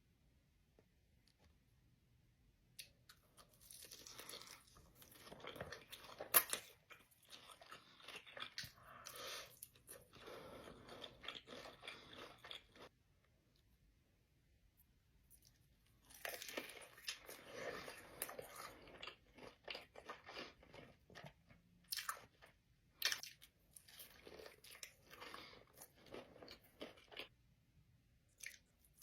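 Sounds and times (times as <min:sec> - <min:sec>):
crunching of crispy food: 0:03.1 - 0:12.9, 0:15.3 - 0:27.4.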